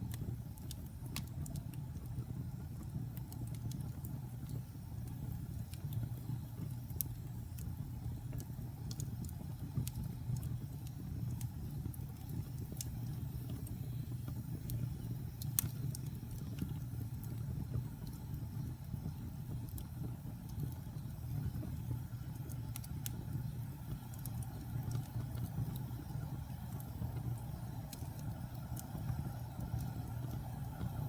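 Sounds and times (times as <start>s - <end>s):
wood fire crackling and popping: 0.0s - 31.0s.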